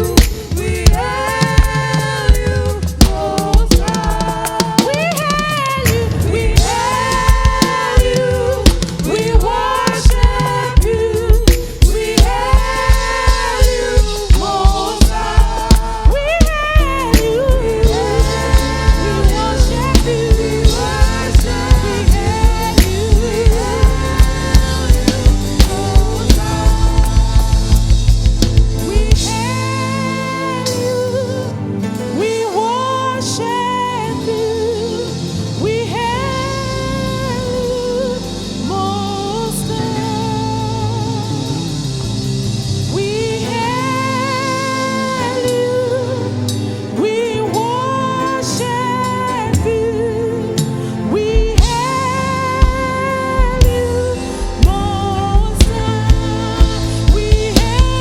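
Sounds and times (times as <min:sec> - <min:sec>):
drum beat: 0:00.0 - 0:29.5, 0:54.5 - 0:58.0
held band accompaniment: 0:00.0 - 0:32.6, 0:33.3 - 0:58.0
singers: 0:00.0 - 0:42.2, 0:42.8 - 0:58.0.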